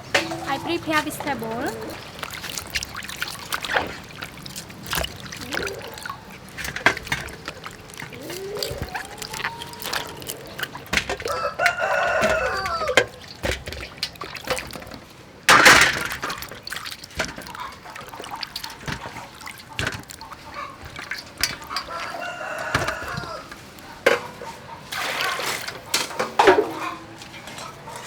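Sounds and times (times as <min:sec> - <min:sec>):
rooster crowing: 0:08.1 - 0:13.1, 0:21.6 - 0:23.7.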